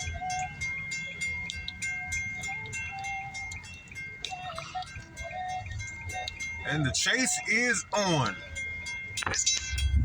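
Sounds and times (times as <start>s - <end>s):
crossing warning bell ringing: 0.0s - 10.0s
low rumble: 9.5s - 10.0s.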